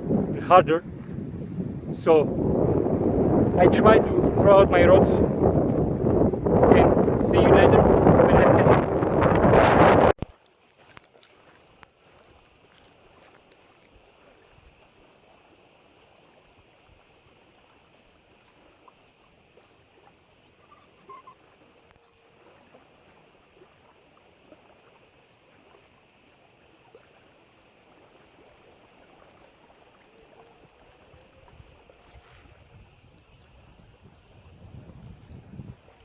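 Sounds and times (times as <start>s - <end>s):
lakeside background noise: 0.0s - 36.0s
faint chirp: 20.6s - 21.4s.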